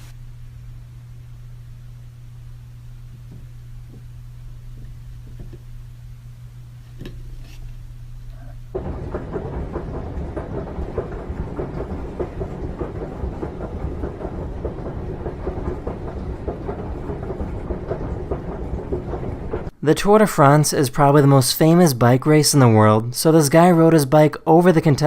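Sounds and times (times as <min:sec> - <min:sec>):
steady hum: 0:00.0 - 0:25.0
helicopter passing overhead: 0:08.7 - 0:19.7.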